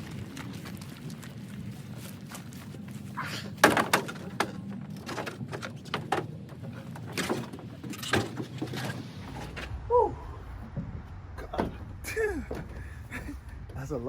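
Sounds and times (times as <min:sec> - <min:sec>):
steady low hum: 0:00.0 - 0:14.0
sharp knocks and thuds: 0:03.6 - 0:09.8.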